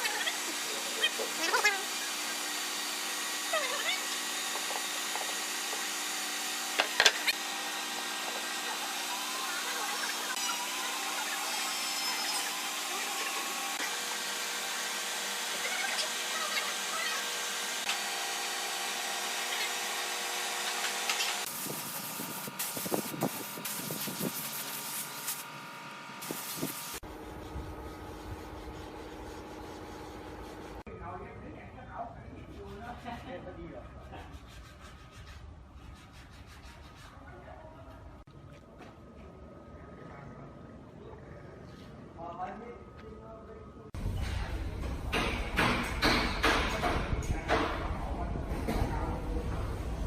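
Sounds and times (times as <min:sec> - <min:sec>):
patchy tool noise: 0:00.0 - 0:14.2
electric power tool on wood: 0:00.0 - 0:21.5.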